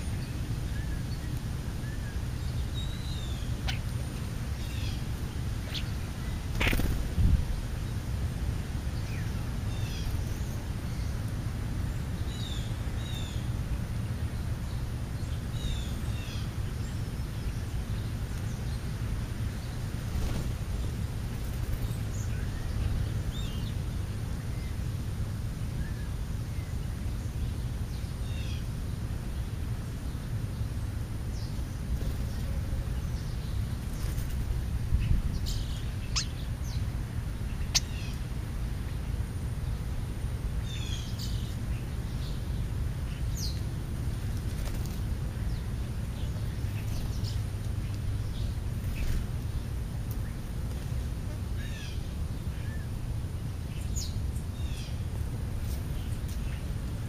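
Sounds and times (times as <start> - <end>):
birds chirping: 0.0 - 8.1, 25.7 - 57.0.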